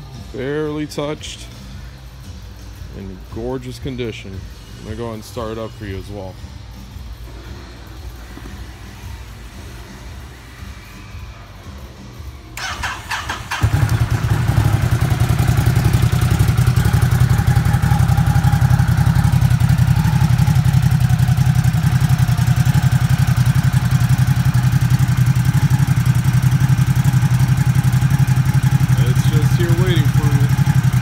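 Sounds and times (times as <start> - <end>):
motorcycle engine starting and idling: 12.6 - 31.0.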